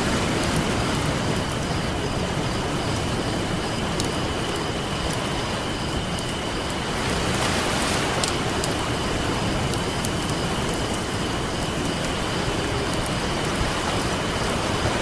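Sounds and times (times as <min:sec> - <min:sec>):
ocean waves breaking: 0:00.0 - 0:06.0, 0:06.6 - 0:10.6
campfire crackling: 0:00.0 - 0:15.0.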